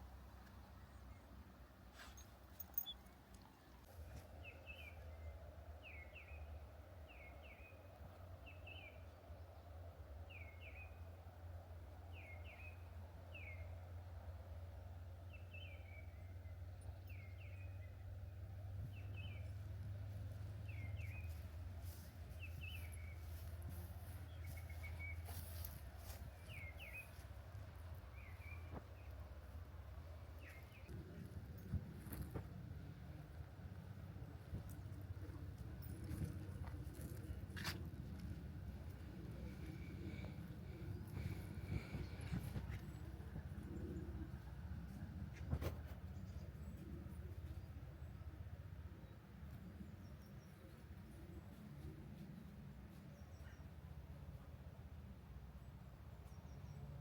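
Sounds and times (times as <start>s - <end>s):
faint low rumble: 0.0s - 57.0s
low steady background hum: 0.0s - 57.0s
songbirds chirping and whistling: 2.0s - 3.2s, 20.4s - 27.3s.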